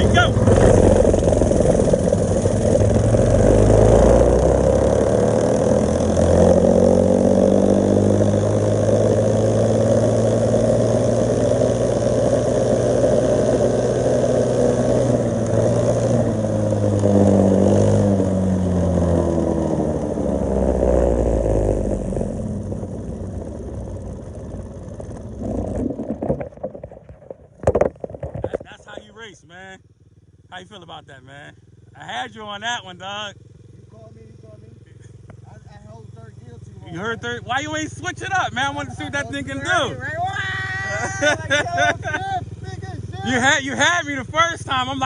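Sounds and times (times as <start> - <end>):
dirt bike engines revving: 0.0 - 26.7, 27.8 - 45.0.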